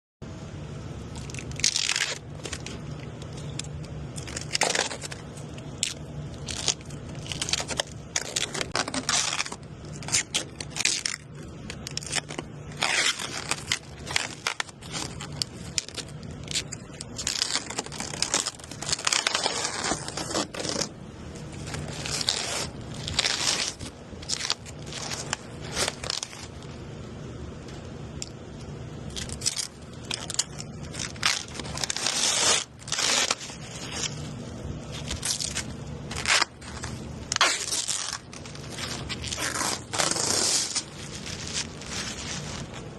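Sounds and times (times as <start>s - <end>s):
steady low hum: 0.2s - 42.9s
scraping and crackling: 27.6s - 42.9s.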